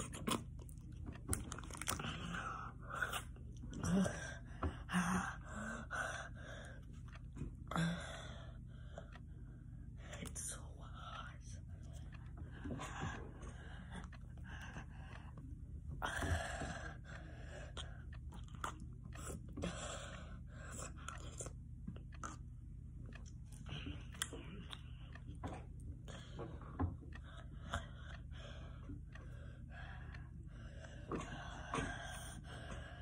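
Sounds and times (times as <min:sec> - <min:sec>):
wet chewing and clicking: 0:00.0 - 0:04.1, 0:17.0 - 0:30.3.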